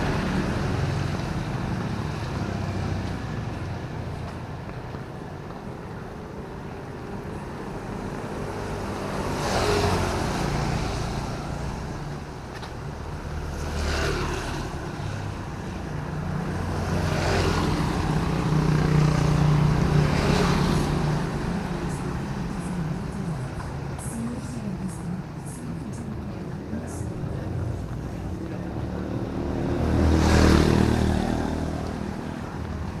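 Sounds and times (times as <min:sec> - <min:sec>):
vehicles swishing past on wet road: 0:00.0 - 0:33.0
low engine rumble: 0:18.0 - 0:33.0.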